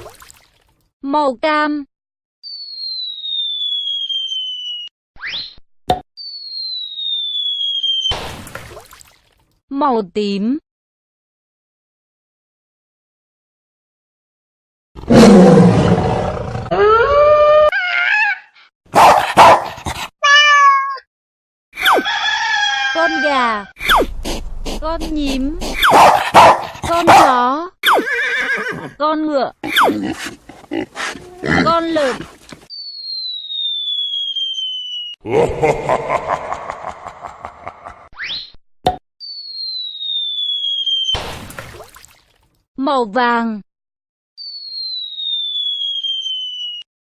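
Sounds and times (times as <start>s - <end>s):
falling whistle-like tone: 2.4s - 5.6s, 6.2s - 8.1s, 32.7s - 35.2s, 39.2s - 41.2s, 44.4s - 46.9s
quick rising whistle: 2.5s - 5.5s, 44.4s - 46.9s
animal roaring: 15.0s - 17.0s
animal howling: 15.1s - 18.6s
animal barking harshly: 18.9s - 20.1s, 24.1s - 27.4s.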